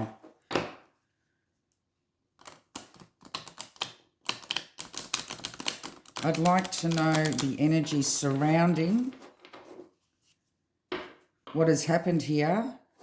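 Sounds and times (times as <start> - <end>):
cards being shuffled: 2.4 - 9.2.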